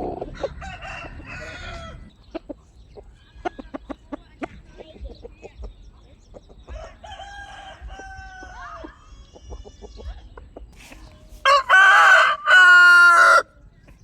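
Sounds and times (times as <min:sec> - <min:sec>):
roosters crowing: 0:00.0 - 0:02.1, 0:06.7 - 0:10.2, 0:10.8 - 0:13.6
chickens clucking softly: 0:00.0 - 0:11.5.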